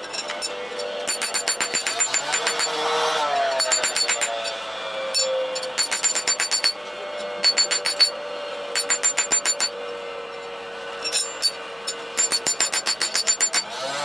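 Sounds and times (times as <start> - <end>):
rapid metallic clicking: 1.1 - 2.8, 3.6 - 4.5, 5.8 - 6.8, 7.4 - 8.1, 8.8 - 9.7, 12.2 - 13.7.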